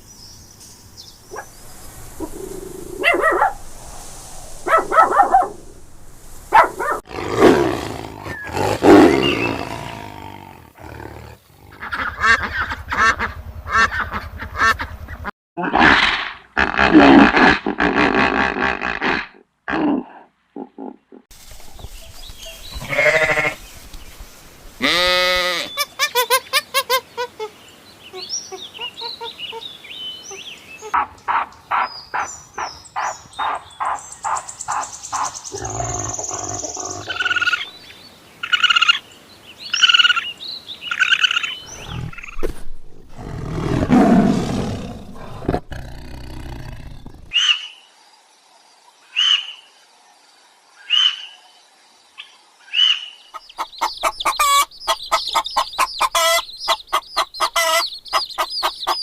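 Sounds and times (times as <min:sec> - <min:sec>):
bird chirping: 0:00.0 - 0:07.0, 0:21.7 - 0:24.3, 0:25.5 - 0:42.5, 0:52.2 - 0:59.0
animal calls and cries: 0:01.3 - 0:03.8, 0:06.5 - 0:17.4, 0:24.8 - 0:39.0, 0:43.1 - 0:47.8, 0:49.1 - 0:49.7, 0:50.8 - 0:51.6, 0:52.2 - 0:59.0.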